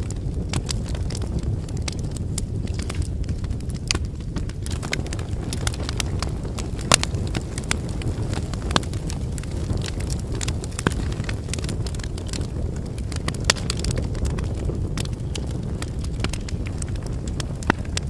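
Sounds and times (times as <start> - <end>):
firewood crackling and popping: 0.0 - 18.0
low rumble of flame: 0.0 - 18.0.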